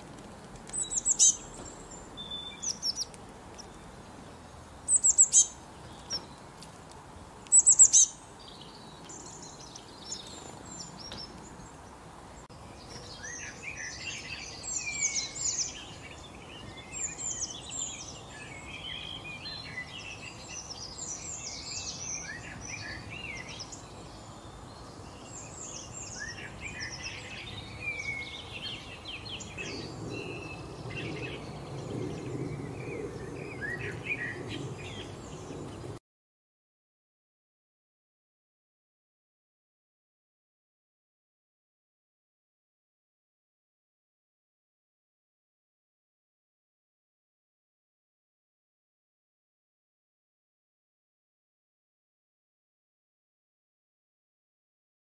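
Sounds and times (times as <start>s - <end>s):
chorus of birds singing: 0.0s - 36.0s
high downward-sweeping bird chirps: 0.7s - 3.9s, 4.9s - 6.4s, 7.5s - 11.4s, 12.6s - 35.7s.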